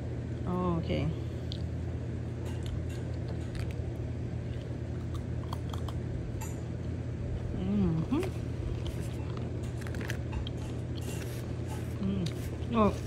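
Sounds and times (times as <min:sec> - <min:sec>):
person chewing crunchy nut: 0:01.4 - 0:06.9, 0:08.1 - 0:13.0.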